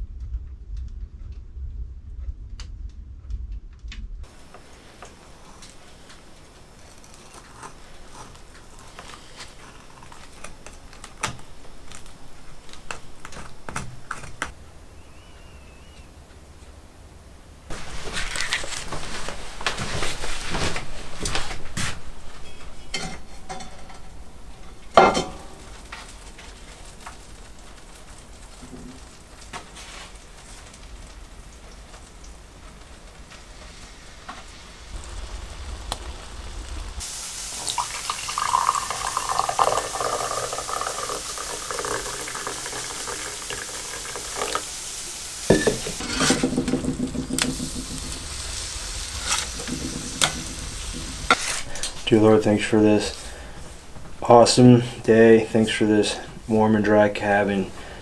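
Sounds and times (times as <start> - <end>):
utensils and dishes clinking: 22.4 - 25.9, 45.5 - 48.3
sharp clank: 25.0 - 25.6
meat sizzling in a skillet: 25.0 - 52.1.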